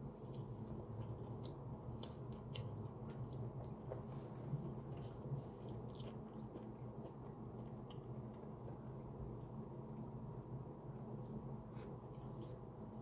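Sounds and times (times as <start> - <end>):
steady low hum: 0.0 - 13.0
chewing with wet mouth clicks: 0.2 - 11.5.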